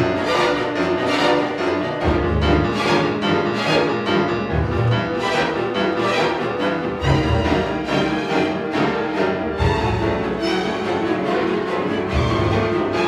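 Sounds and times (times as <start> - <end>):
string orchestra playing: 0.0 - 13.0.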